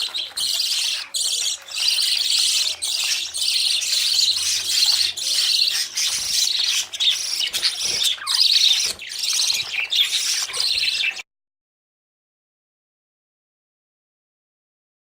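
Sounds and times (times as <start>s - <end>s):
budgerigars chirping and chattering: 0.0s - 11.2s.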